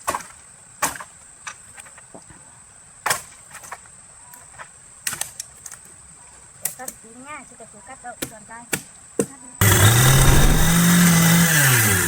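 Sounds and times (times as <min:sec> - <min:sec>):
blade hacking tree branches: 0:09.7 - 0:11.0.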